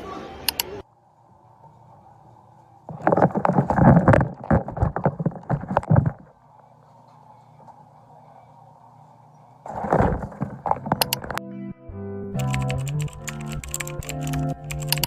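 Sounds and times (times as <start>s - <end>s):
faint steady hum: 0.0s - 11.4s
objects knocking and clattering: 2.9s - 6.4s, 9.7s - 11.4s.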